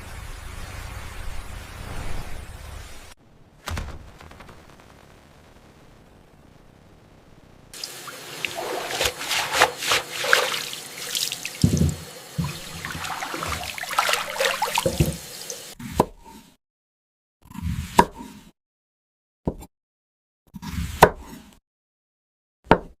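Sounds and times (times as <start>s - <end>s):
short water splashes: 7.8s - 15.8s
water splashing and trickling: 7.8s - 15.8s.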